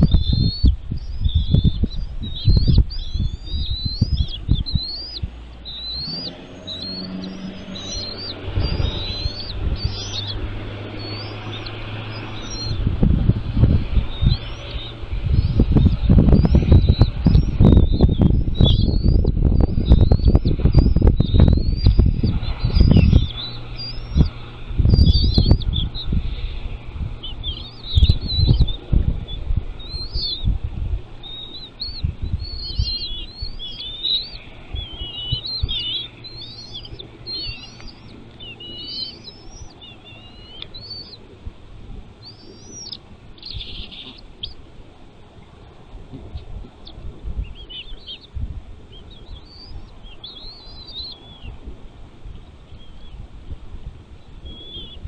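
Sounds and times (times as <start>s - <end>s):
low thumps and rumble: 0.0s - 33.6s
eagle chittering calls: 0.0s - 41.4s, 42.2s - 44.7s, 46.2s - 51.6s, 54.3s - 55.0s.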